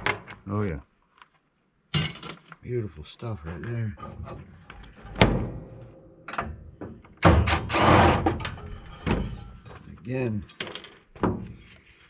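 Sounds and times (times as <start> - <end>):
metal scrap knocking: 7.3 - 9.9.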